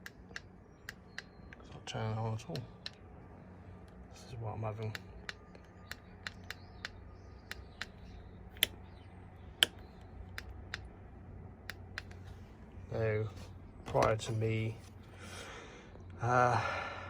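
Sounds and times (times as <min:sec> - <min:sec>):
handlebar switch clicks: 0:04.9 - 0:08.0, 0:08.6 - 0:08.8.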